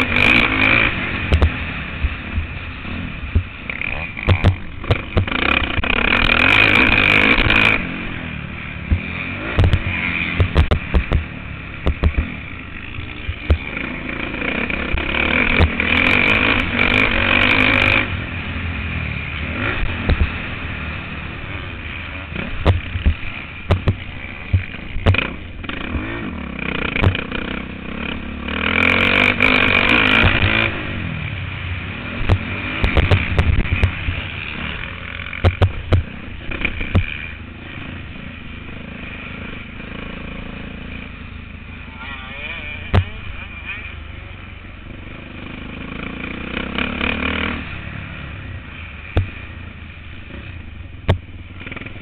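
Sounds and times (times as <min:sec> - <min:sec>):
motocross bike engine revving: 0:00.0 - 0:52.0
knocks and rattles: 0:04.2 - 0:06.3, 0:10.4 - 0:12.3, 0:22.5 - 0:25.3, 0:35.3 - 0:36.1.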